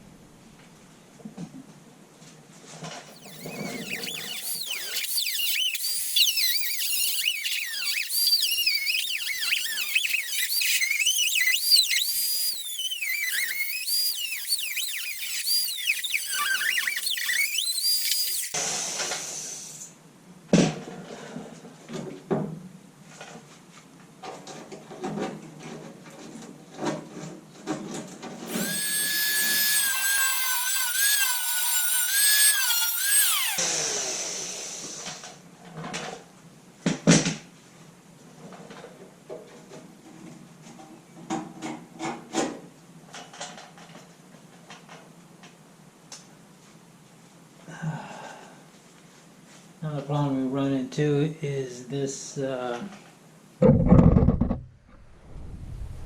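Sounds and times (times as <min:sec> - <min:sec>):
power tool screeching through metal: 0:03.1 - 0:18.6, 0:28.4 - 0:34.2
high whine: 0:03.2 - 0:18.6, 0:28.5 - 0:33.6.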